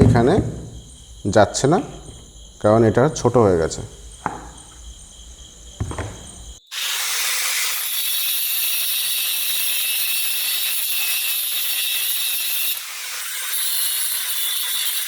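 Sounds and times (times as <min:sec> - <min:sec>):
arc welding crackling hiss: 0:06.6 - 0:15.0.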